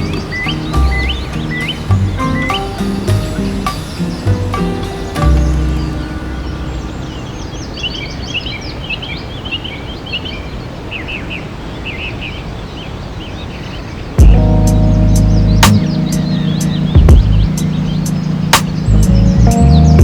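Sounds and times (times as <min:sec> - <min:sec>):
music: 0:00.0 - 0:07.6, 0:14.2 - 0:20.0
birds chirping: 0:00.0 - 0:20.0
steady outdoor hiss: 0:00.0 - 0:20.0.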